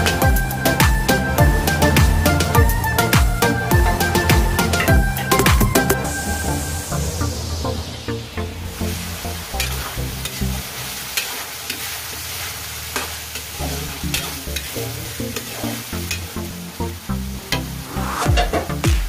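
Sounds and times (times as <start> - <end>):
minced meat sizzling in oil: 8.7 - 18.8
metal spatula scraping pan: 11.1 - 16.3.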